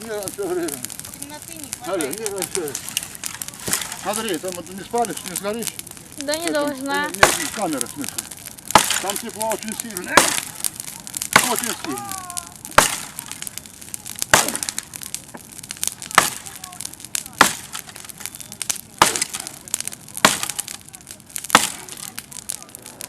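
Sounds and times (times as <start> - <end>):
faint crackling: 0.0 - 23.0
wood cracking sharply: 0.0 - 23.0.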